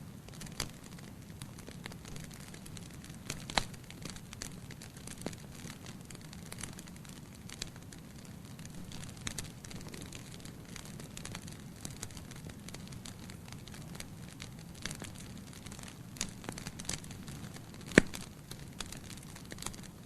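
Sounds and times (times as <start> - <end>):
fire flames rumbling: 0.0 - 20.0
logs crackling: 0.3 - 20.0
sharp pop from fire: 17.8 - 18.2.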